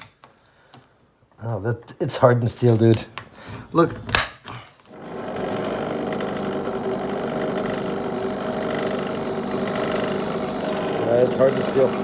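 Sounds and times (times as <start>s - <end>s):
electric drill boring into steel: 4.9s - 12.0s
high whine of drill bit on metal: 4.9s - 12.0s.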